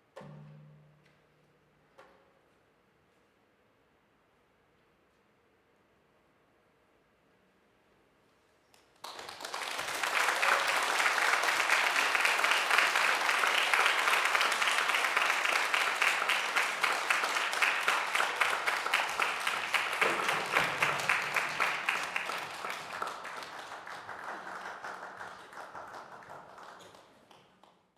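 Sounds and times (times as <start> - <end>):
audience applauding: 9.0 - 27.8.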